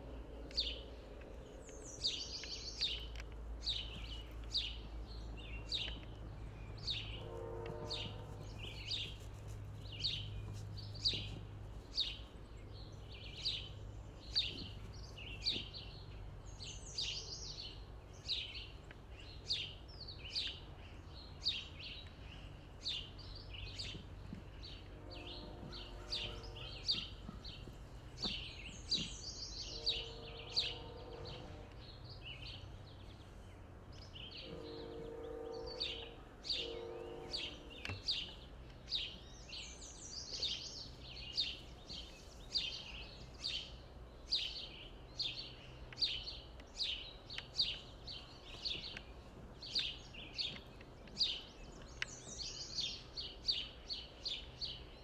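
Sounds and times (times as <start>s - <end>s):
bird singing falling chirps: 0.0s - 9.2s
low steady rumble: 0.0s - 55.0s.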